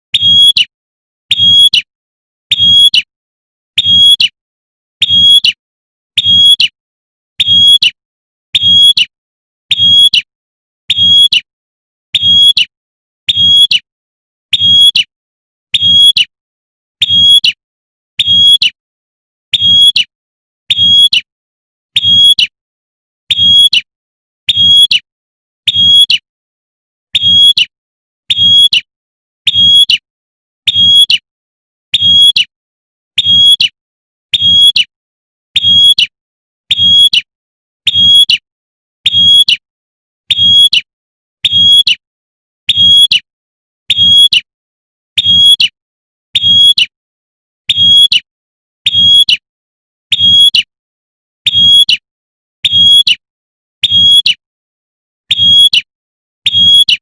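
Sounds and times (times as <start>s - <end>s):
bird sharp high calls: 0.2s - 0.7s, 9.7s - 10.3s, 18.2s - 18.8s, 29.5s - 30.0s, 35.6s - 36.1s, 39.1s - 39.6s, 40.3s - 42.0s, 53.8s - 54.4s.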